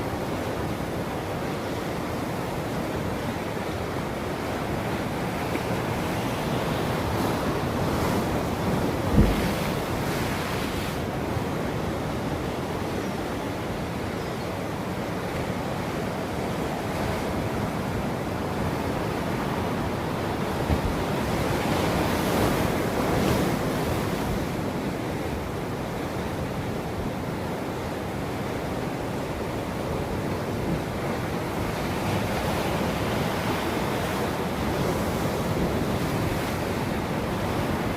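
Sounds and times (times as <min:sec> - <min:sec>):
ocean waves breaking on shore: 0:00.0 - 0:37.9
wind on microphone: 0:06.8 - 0:11.0.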